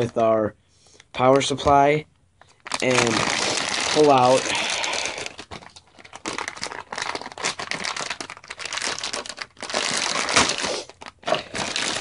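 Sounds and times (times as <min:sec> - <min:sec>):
plastic packaging crinkling: 0:02.4 - 0:12.0.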